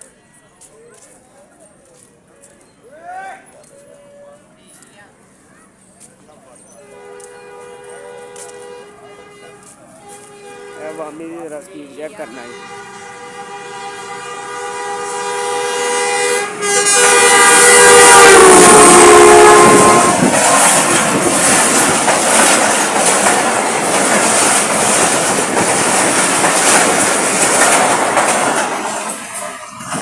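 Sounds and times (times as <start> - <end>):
locomotive horn: 6.8 - 11.3, 12.2 - 21.4
train wheels clattering on rails: 17.2 - 30.0.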